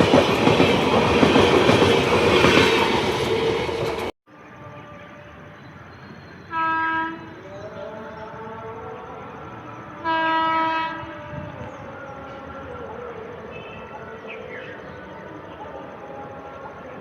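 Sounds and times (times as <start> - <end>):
locomotive horn blast: 6.5 - 7.3, 10.0 - 11.6.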